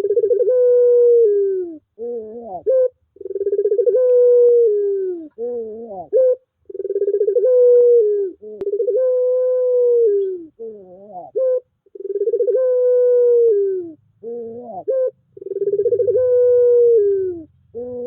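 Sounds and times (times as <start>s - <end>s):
dove cooing: 0.0s - 18.0s.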